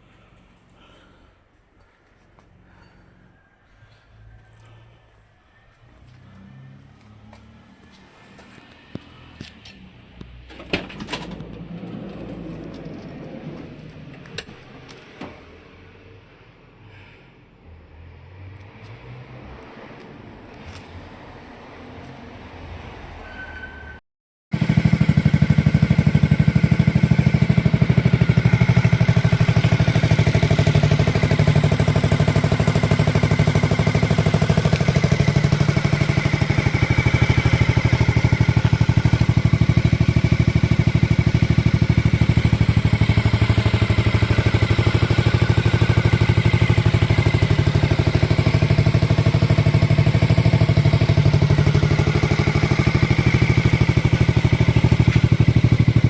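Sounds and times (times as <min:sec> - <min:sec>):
scooter engine idling: 0:24.6 - 0:56.0.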